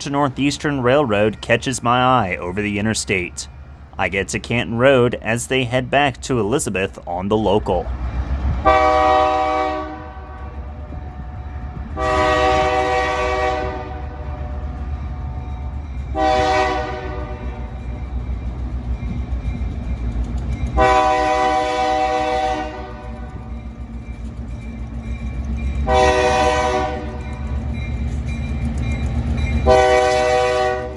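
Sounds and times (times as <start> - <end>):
locomotive engine rumble: 0.0 - 30.9
locomotive air horn blasts: 8.6 - 14.8, 16.1 - 17.7, 20.8 - 23.3, 25.9 - 27.2, 29.7 - 30.9.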